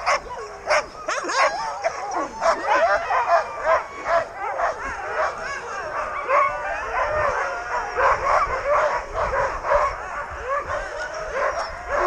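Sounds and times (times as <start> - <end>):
dogs barking yipping and howling: 0.0 - 12.0.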